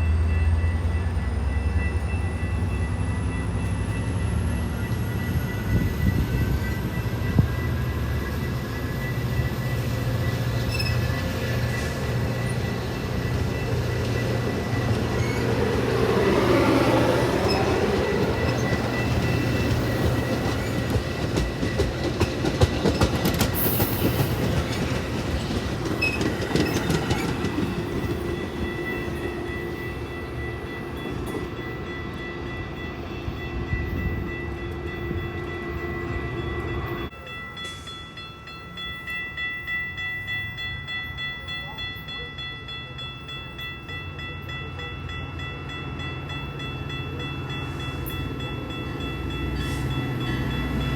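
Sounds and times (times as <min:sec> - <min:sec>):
train wheels clicking over rails: 0:14.0 - 0:29.3.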